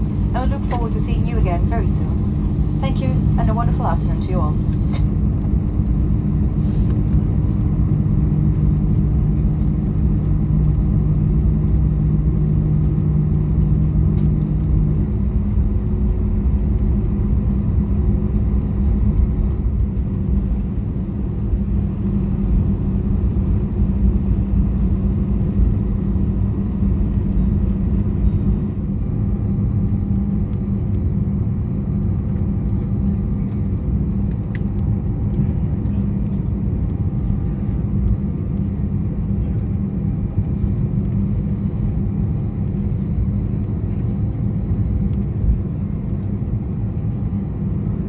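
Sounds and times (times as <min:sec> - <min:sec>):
steady hum: 0:00.0 - 0:06.8
low rumble of idling jet engines: 0:00.0 - 0:48.0.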